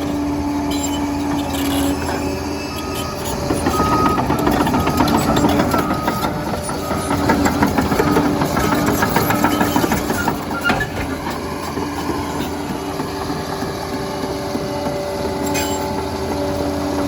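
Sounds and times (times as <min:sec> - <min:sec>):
diesel engine under load: 0:00.0 - 0:17.0
steel tracks clanking: 0:00.0 - 0:17.0
back-up alarm beeping: 0:03.6 - 0:09.7.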